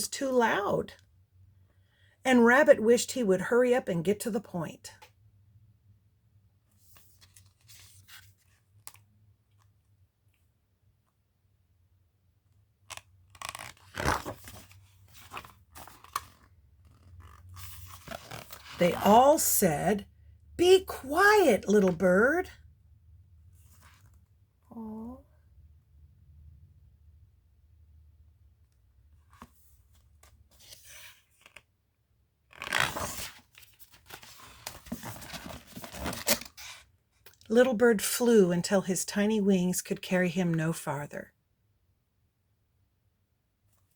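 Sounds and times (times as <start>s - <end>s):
pages of a book being turned: 6.8s - 9.8s, 12.8s - 19.1s, 29.2s - 31.7s, 32.5s - 36.9s
paper rustling: 32.6s - 36.8s.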